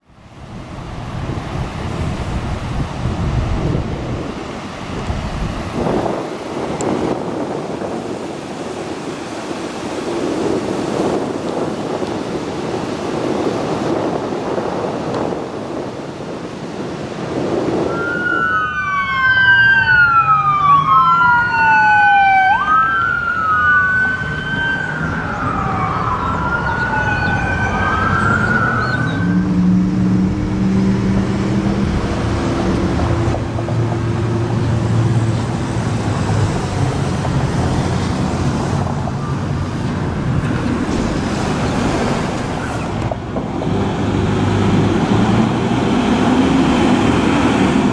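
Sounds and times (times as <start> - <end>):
road and wind noise: 0.0 - 47.9
emergency siren: 17.6 - 31.2, 32.8 - 43.0
heavy vehicle engine running: 24.1 - 47.9.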